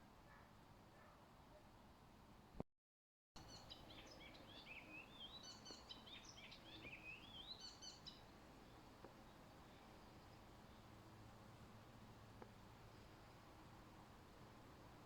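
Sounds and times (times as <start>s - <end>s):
songbird singing: 3.4s - 11.2s.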